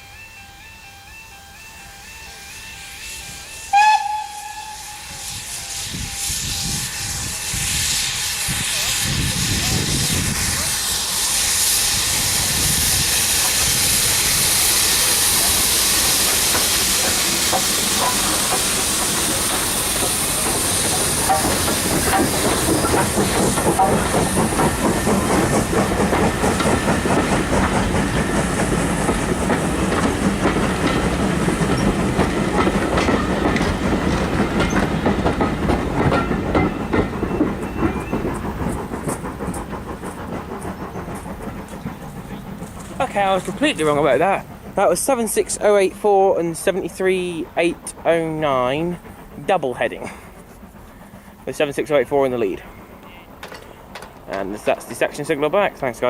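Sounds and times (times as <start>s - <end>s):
loud steam hiss: 2.2s - 56.0s
wheels clicking over rail joints: 15.0s - 56.0s.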